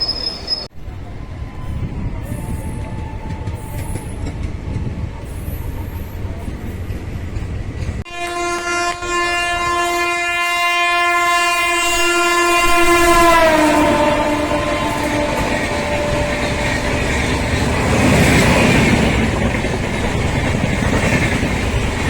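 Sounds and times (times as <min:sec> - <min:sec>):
train rumbling on rails: 0:00.0 - 0:22.0
long train horn blast: 0:08.0 - 0:18.2.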